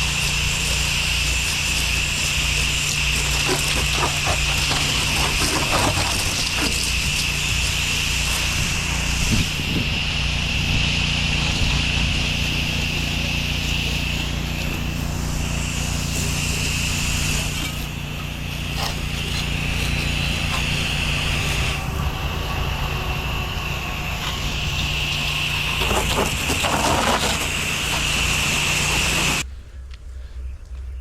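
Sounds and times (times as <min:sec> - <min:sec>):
hissing spray jet: 0:00.0 - 0:29.4
pressure washer engine humming: 0:00.0 - 0:29.5
clatter: 0:01.6 - 0:07.6, 0:25.7 - 0:29.4.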